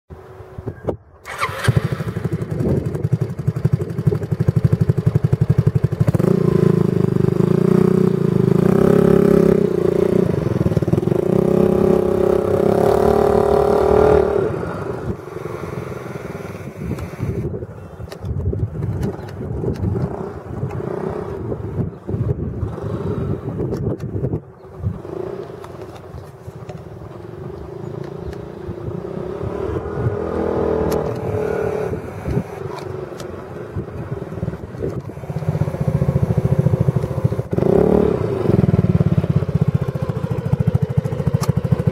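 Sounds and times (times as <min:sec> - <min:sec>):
engine starting and revving: 0:01.2 - 0:17.5, 0:22.6 - 0:23.7, 0:27.4 - 0:33.4, 0:34.4 - 0:41.9.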